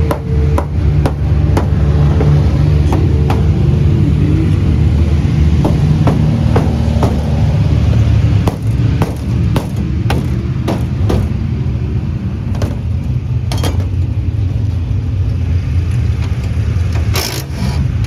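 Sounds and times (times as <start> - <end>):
sharp metallic knocks: 0.0 - 4.2, 4.9 - 11.7, 12.5 - 14.0
engines droning: 0.0 - 18.0.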